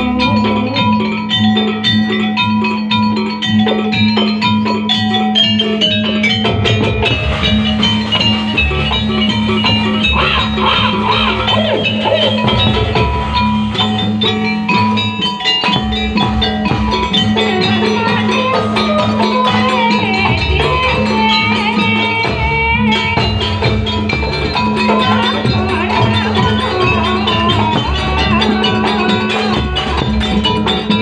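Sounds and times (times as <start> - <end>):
ornamented melody line: 0.0 - 31.0
percussion ensemble drums and gongs: 0.0 - 31.0.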